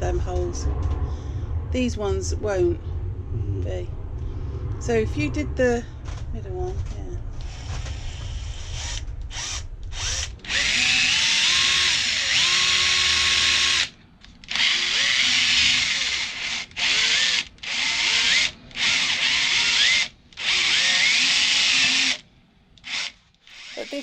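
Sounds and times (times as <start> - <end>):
electric drill boring: 7.4 - 22.2, 22.8 - 24.0.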